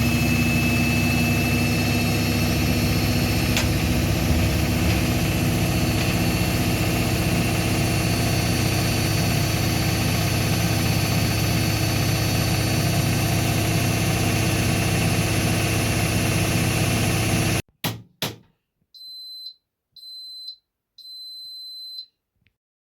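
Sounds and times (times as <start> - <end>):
washing machine spinning: 0.0 - 17.6
machine clicks: 3.5 - 6.2.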